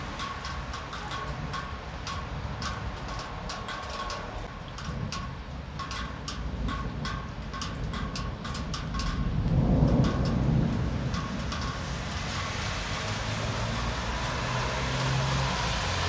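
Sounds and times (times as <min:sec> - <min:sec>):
low storm rumble: 0:00.0 - 0:16.0
raindrops ticking on hard surface: 0:00.0 - 0:16.0
thunder: 0:06.4 - 0:16.0.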